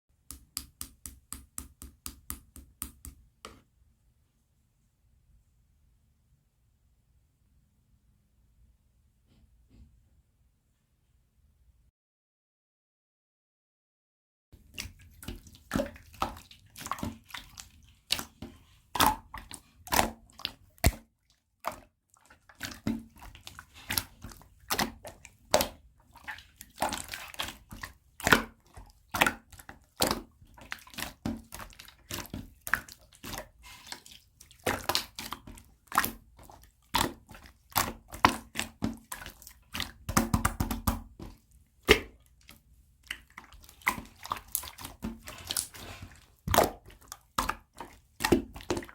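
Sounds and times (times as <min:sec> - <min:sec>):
hands squishing slime: 0:14.6 - 0:21.1, 0:21.7 - 0:48.9.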